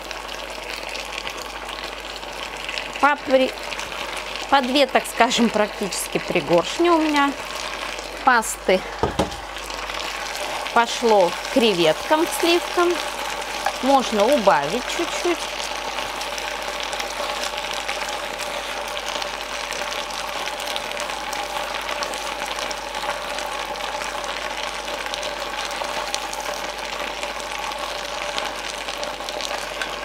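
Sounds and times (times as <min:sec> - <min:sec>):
food sizzling and bubbling: 0:00.0 - 0:30.0
stirring with tongs and spatula: 0:12.4 - 0:15.2.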